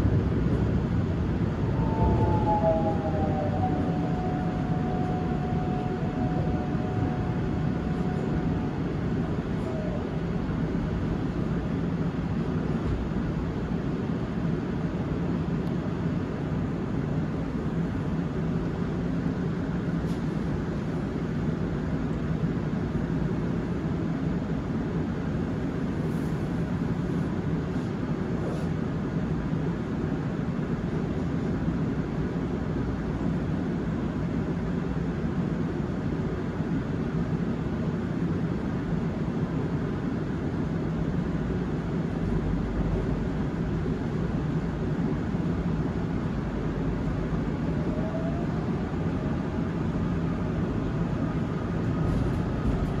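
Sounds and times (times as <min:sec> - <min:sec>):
train rumble inside car: 0:00.0 - 0:53.0.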